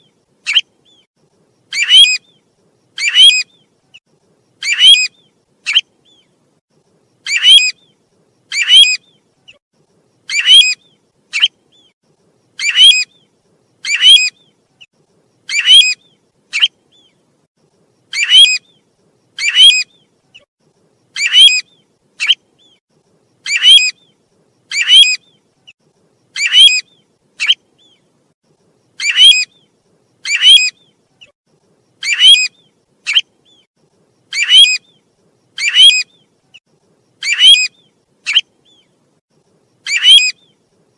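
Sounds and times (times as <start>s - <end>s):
bird call: 1.7s - 2.4s, 3.0s - 3.7s, 4.6s - 6.3s, 7.2s - 9.6s, 10.2s - 11.9s, 12.6s - 14.6s, 15.5s - 17.2s, 18.1s - 18.8s, 19.4s - 20.5s, 21.1s - 22.8s, 23.4s - 25.4s, 26.4s - 28.0s, 29.0s - 31.3s, 32.0s - 33.7s, 34.3s - 35.0s, 35.6s - 36.3s, 37.2s - 38.9s, 39.8s - 40.6s.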